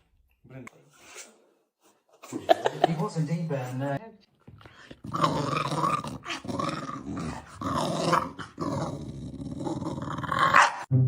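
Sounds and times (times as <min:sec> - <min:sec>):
dog growling: 0:04.9 - 0:10.9.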